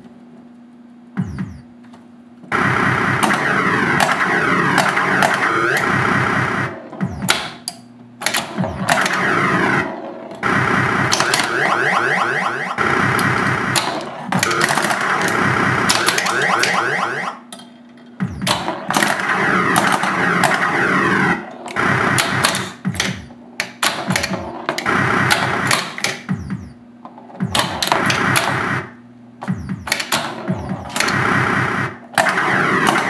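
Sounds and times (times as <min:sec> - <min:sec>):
warbling siren-like electronic tones: 0:01.2 - 0:01.7, 0:02.5 - 0:07.6, 0:08.4 - 0:17.5, 0:18.2 - 0:23.4, 0:24.2 - 0:26.8, 0:27.4 - 0:33.0
pinball playfield clicks: 0:07.2 - 0:09.3, 0:13.2 - 0:20.7, 0:21.4 - 0:28.6, 0:29.8 - 0:31.2.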